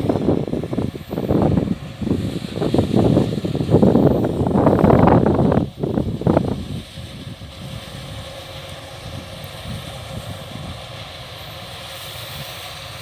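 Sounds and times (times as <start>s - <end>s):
combine harvester engine humming: 0.0s - 13.0s.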